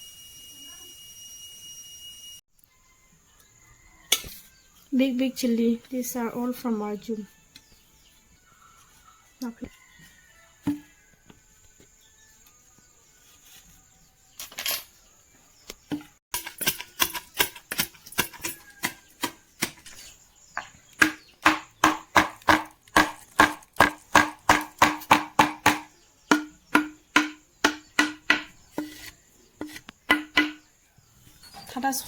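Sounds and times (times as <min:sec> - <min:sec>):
knife chopping on cutting board: 0:20.6 - 0:30.6.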